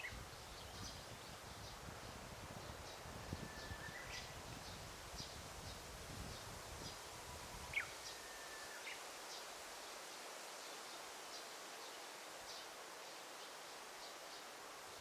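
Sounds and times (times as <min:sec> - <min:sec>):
faint steady hiss: 0:00.0 - 0:15.0
whistled bird calls: 0:03.3 - 0:04.4, 0:07.7 - 0:09.0.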